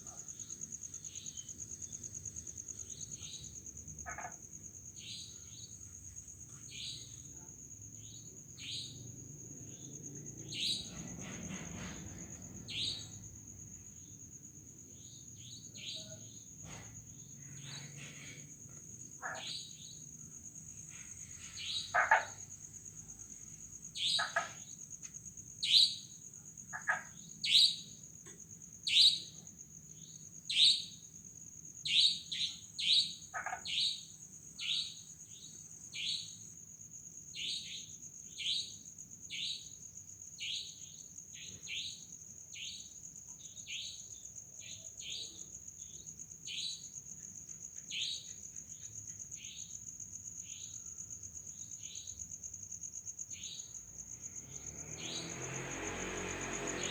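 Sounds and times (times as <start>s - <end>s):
crickets trilling: 0.0s - 56.9s
frogs: 0.0s - 56.9s
night bird calls falling in pitch: 11.8s - 13.3s, 19.2s - 20.0s, 21.4s - 22.5s, 24.0s - 24.8s, 25.6s - 26.1s, 26.8s - 28.0s, 28.8s - 29.4s, 30.0s - 31.0s, 31.8s - 36.4s.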